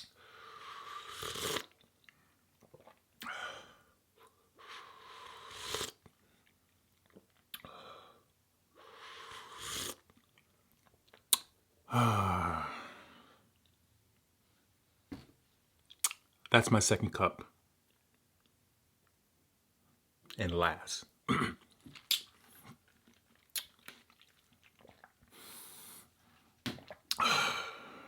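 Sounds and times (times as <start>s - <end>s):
voiced sigh: 11.9s - 13.4s, 27.1s - 28.0s
chewing: 21.6s - 25.3s
breathing through the nose: 25.3s - 26.1s.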